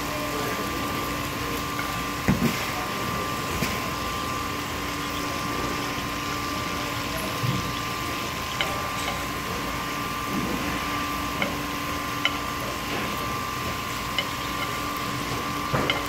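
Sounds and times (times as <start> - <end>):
steady hum: 0.0 - 16.0
fish and prawns sizzling in pan: 0.1 - 16.0.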